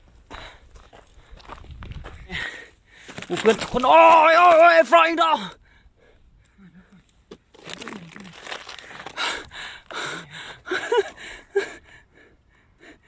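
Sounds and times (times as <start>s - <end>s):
man breathing hard: 0.2s - 3.2s, 5.6s - 7.0s, 8.8s - 13.0s.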